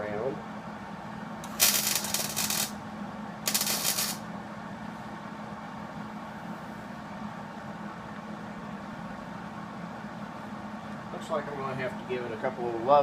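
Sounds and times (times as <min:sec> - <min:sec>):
steady low hum: 0:00.0 - 0:13.0
welding arc crackle: 0:01.4 - 0:02.8, 0:03.5 - 0:04.2.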